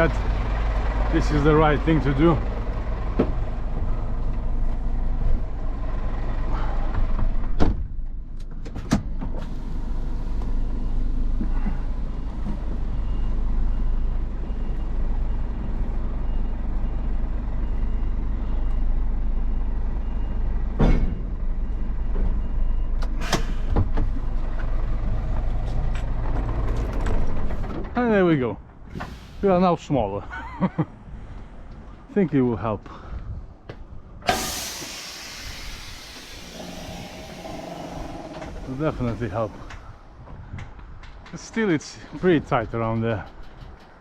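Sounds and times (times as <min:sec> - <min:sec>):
truck engine humming: 0:00.0 - 0:08.4, 0:33.5 - 0:41.2.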